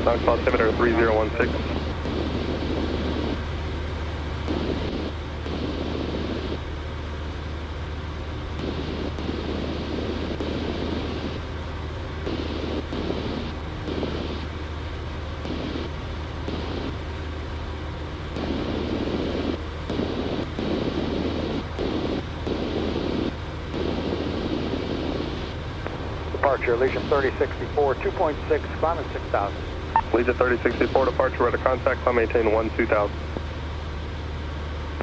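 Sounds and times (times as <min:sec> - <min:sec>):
propeller plane engine droning: 0:00.0 - 0:35.0.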